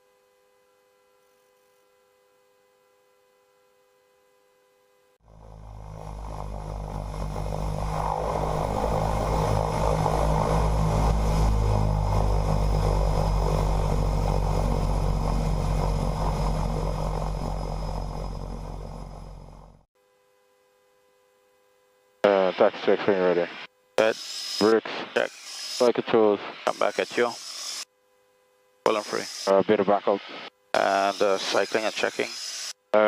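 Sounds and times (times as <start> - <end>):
turboprop engines droning: 5.2 - 19.9.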